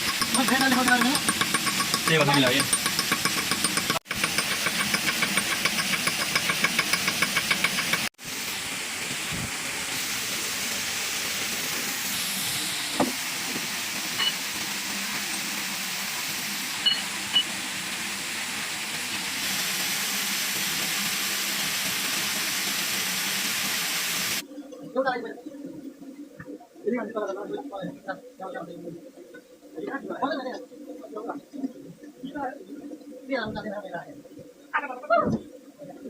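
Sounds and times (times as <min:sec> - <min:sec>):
water mill clattering: 0:00.0 - 0:08.1
water rushing: 0:00.0 - 0:24.4.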